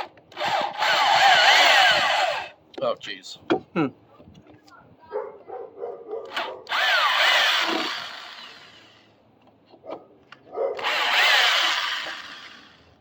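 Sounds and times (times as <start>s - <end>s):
electric drill backing out screws: 6.3s - 8.9s, 10.8s - 12.9s.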